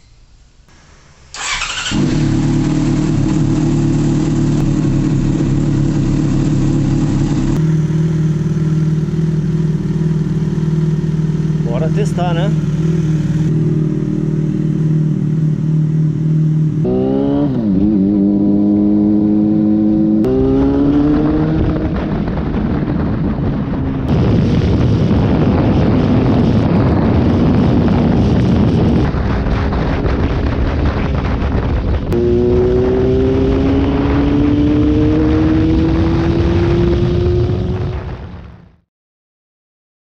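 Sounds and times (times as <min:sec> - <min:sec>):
motorcycle engine accelerating: 0:01.3 - 0:38.8
wind rush: 0:11.6 - 0:38.8.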